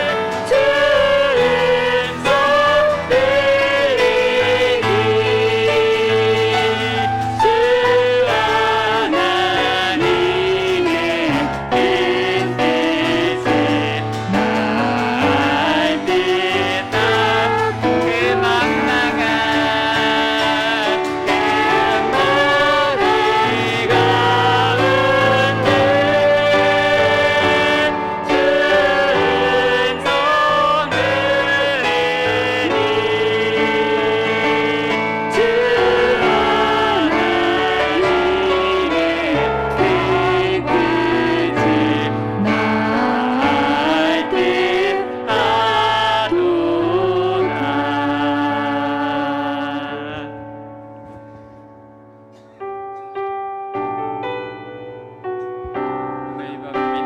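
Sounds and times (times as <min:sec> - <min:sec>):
people singing worship song: 0:00.0 - 0:52.6
piano accompaniment: 0:00.0 - 0:57.0.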